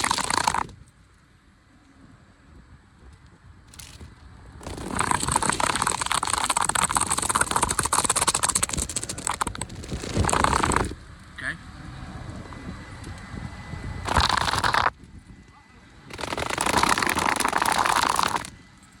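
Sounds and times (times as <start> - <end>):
car wash spattering rush: 0.0 - 0.7, 4.6 - 11.0, 16.1 - 18.5.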